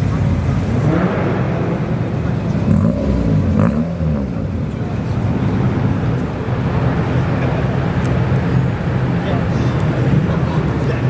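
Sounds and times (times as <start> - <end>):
car engine running: 0.0 - 11.0
engine revving: 0.5 - 6.3.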